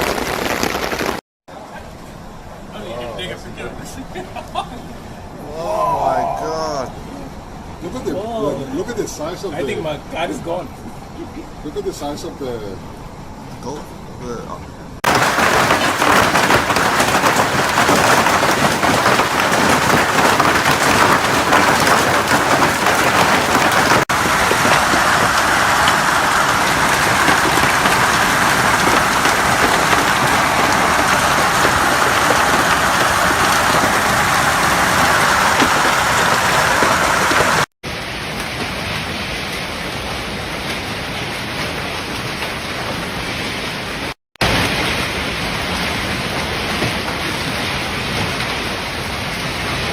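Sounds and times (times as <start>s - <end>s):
heavy rain pelting down: 0.0s - 3.4s, 15.0s - 49.9s.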